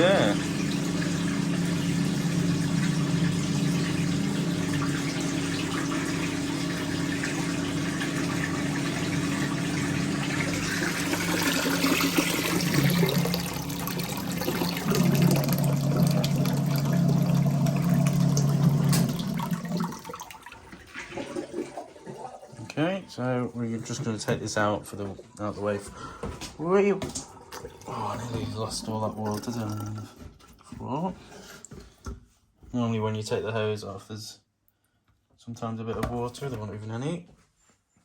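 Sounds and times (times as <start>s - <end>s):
water splashing into a sink: 0.0s - 23.0s, 27.0s - 30.4s
washing machine pump humming: 0.0s - 31.9s.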